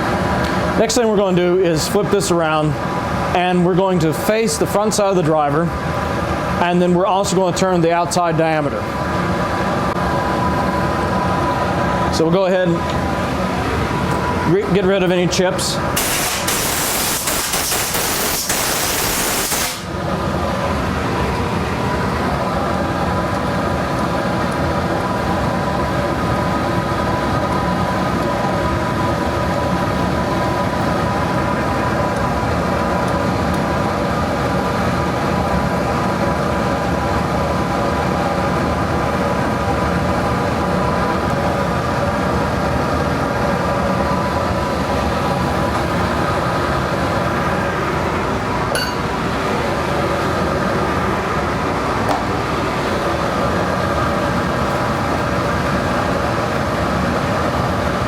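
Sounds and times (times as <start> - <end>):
compressed air blast hissing: 16.0 - 19.9.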